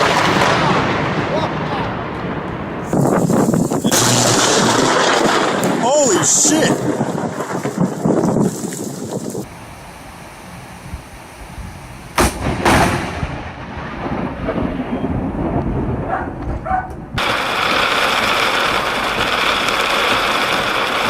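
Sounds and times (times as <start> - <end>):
thunder cracks and rumbling: 0.0 - 9.5, 12.1 - 21.0
loud steady rushing noise: 2.8 - 8.1, 17.2 - 21.0.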